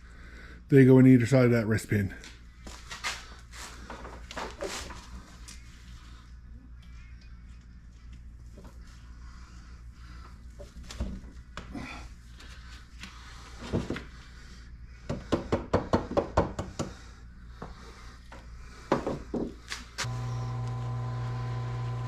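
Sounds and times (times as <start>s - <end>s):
steady low hum: 20.0s - 22.0s.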